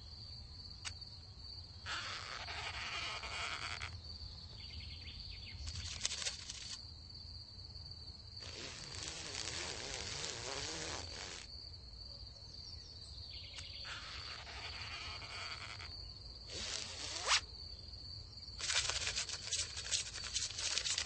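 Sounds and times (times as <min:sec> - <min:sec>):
high-pitched insect trill: 0:00.0 - 0:21.0
buzzing rustling bursts: 0:01.9 - 0:03.9, 0:08.4 - 0:11.5, 0:13.9 - 0:15.9, 0:16.5 - 0:17.5, 0:18.6 - 0:21.0.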